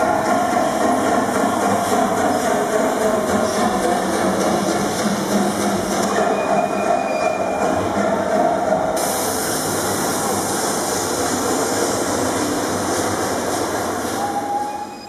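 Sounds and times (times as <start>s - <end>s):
train rattling along rails: 0.0s - 15.0s.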